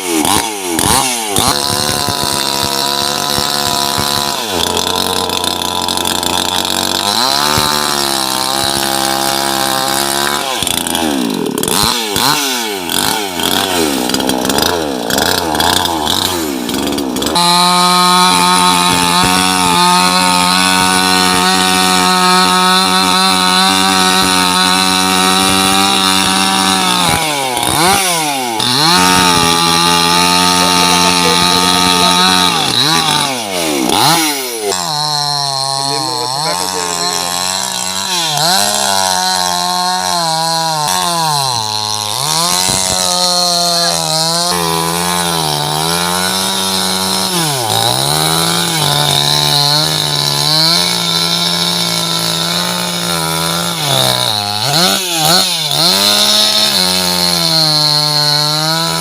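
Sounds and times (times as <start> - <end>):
chainsaw engine revving: 0.0 - 59.0.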